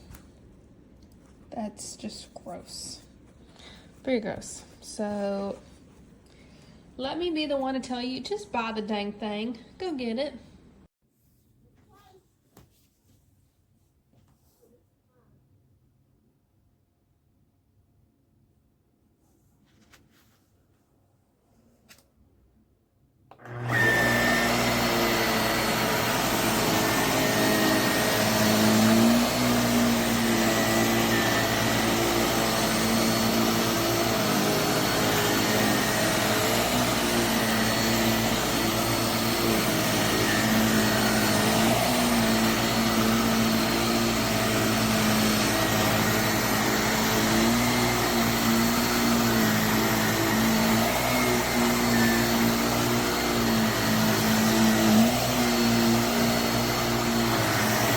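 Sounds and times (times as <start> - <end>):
handheld vacuum running: 23.3 - 57.9.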